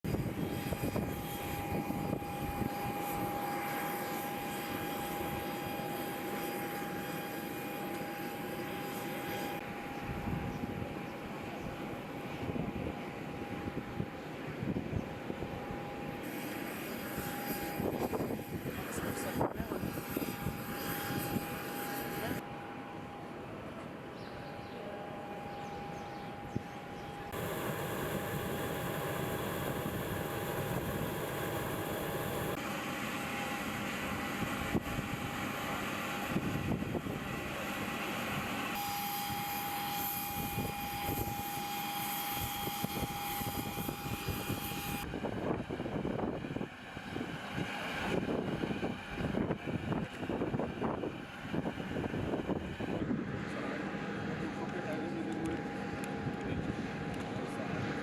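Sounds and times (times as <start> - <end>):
aircraft engines whining: 24.8 - 58.0.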